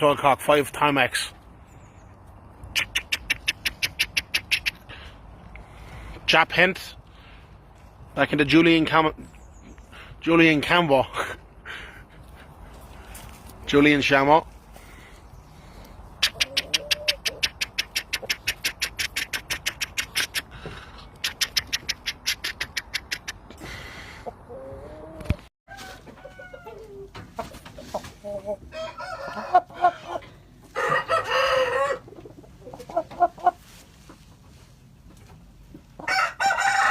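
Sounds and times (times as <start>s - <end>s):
roosters clucking: 0.2s - 36.9s
fast sharp clicks: 16.2s - 20.5s, 21.2s - 23.4s
rooster crowing: 28.7s - 30.2s, 30.8s - 32.0s, 36.0s - 36.9s.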